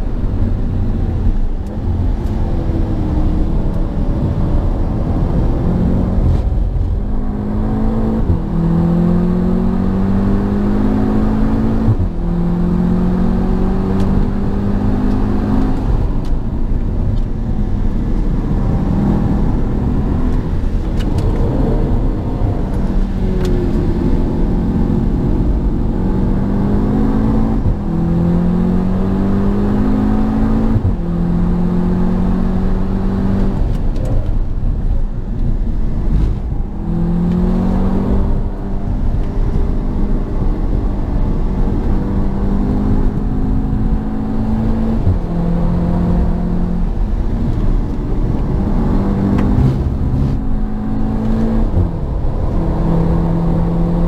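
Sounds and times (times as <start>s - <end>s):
car engine at full throttle: 0.0s - 54.0s
tyre and road noise: 0.0s - 54.0s.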